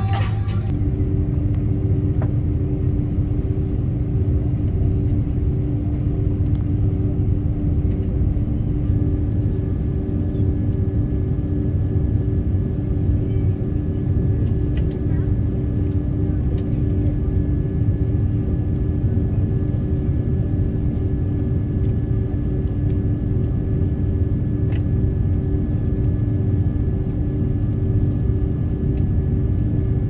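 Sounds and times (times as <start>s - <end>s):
high engine whine: 0.0s - 3.6s
jet engines rumbling in cabin: 0.0s - 30.0s.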